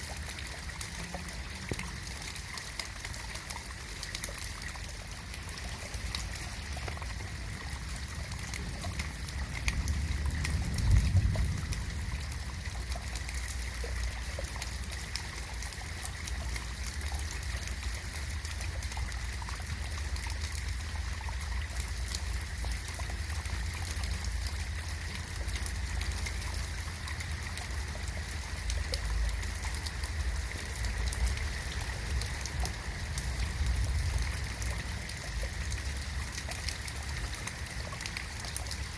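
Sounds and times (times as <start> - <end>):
rain pattering: 0.0 - 38.9
trickling water: 0.0 - 38.9
low rumble: 7.4 - 13.8.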